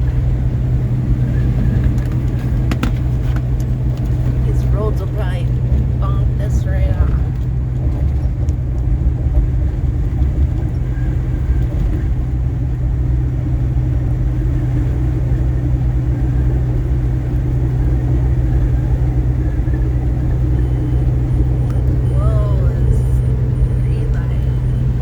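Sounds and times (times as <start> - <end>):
road and engine rumble: 0.0 - 25.0.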